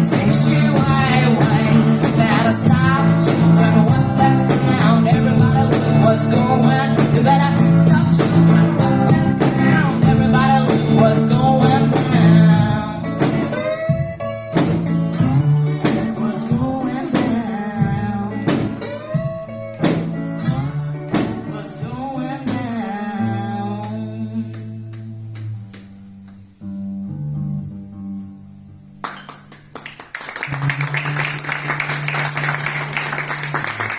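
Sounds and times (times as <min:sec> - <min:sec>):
person singing: 0:00.0 - 0:13.8, 0:15.2 - 0:19.0, 0:21.1 - 0:25.0
strummed guitar: 0:00.0 - 0:29.5.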